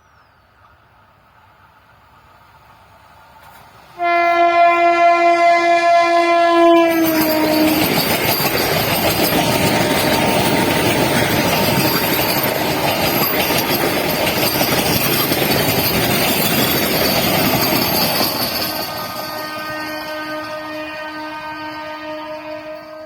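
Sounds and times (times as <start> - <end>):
train coaches rushing and rattling: 2.2 - 23.0
train horn: 4.0 - 8.1, 19.1 - 23.0
high wheel squeal: 6.9 - 20.9.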